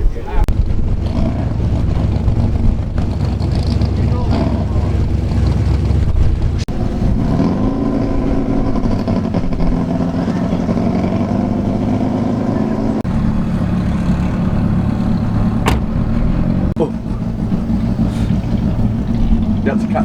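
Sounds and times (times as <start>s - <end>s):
loud drag car engine: 0.4s - 20.0s.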